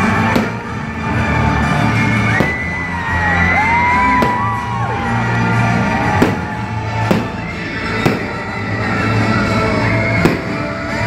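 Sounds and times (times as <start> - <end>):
loud show music: 0.0 - 11.0
fireworks bangs: 0.1 - 0.8, 2.3 - 3.0, 4.1 - 4.8, 6.0 - 8.9, 10.2 - 11.0.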